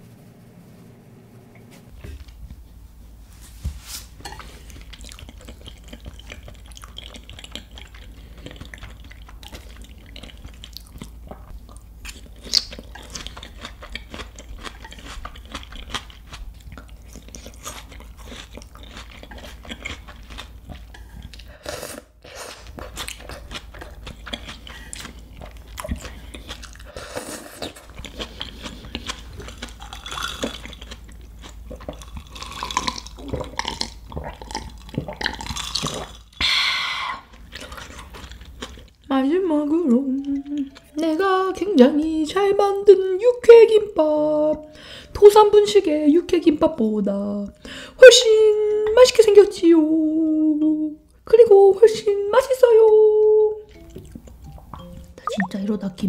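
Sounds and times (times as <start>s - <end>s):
chewing with wet clicks: 4.3s - 21.5s, 22.6s - 27.0s, 27.6s - 36.4s, 37.3s - 39.1s, 39.9s - 41.4s, 53.7s - 55.6s
person drinking from a glass: 54.8s - 55.5s.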